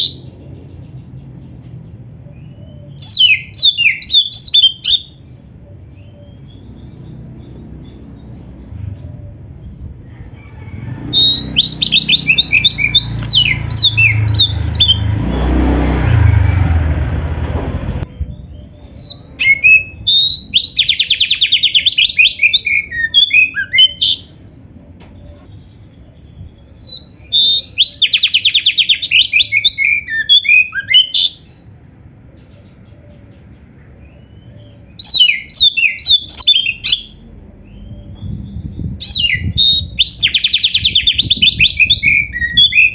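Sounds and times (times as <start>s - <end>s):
magpie-robin singing: 0.0s - 10.1s, 11.1s - 15.1s, 18.0s - 42.9s
low background rumble: 16.2s - 20.7s, 37.1s - 42.9s.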